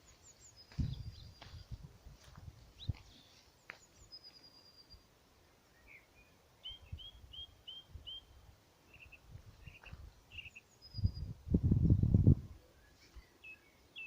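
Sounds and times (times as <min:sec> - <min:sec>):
songbirds singing: 0:00.0 - 0:14.0
soft low thumps: 0:00.7 - 0:03.1.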